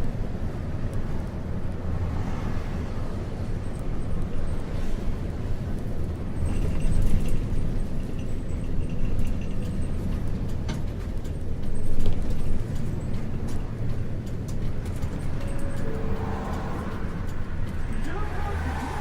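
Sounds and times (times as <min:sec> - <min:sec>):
bus diesel engine running: 0:00.0 - 0:19.0
road noise: 0:00.0 - 0:19.0
bodywork clicks and rattles: 0:05.7 - 0:15.8.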